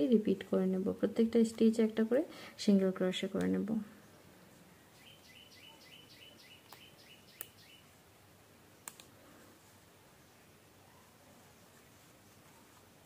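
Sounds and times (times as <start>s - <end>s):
small bird chirping: 4.9s - 8.0s
light clicks: 8.8s - 9.1s.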